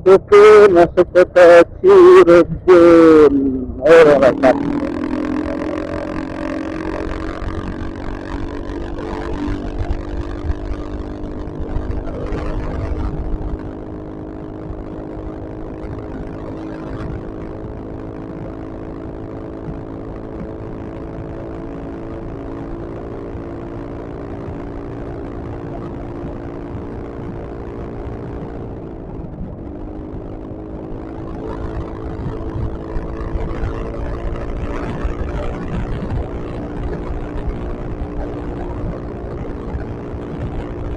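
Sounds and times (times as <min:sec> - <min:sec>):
low wind rumble: 0:00.0 - 0:40.9
scooter engine running: 0:01.7 - 0:17.4.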